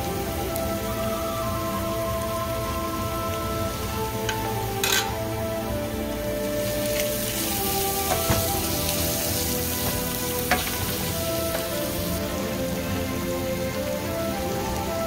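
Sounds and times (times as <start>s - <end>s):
onions sizzling in hot oil: 0.0s - 15.0s
soft background music: 0.0s - 15.0s
wooden spatula tapping pan: 8.0s - 8.8s, 9.7s - 11.8s.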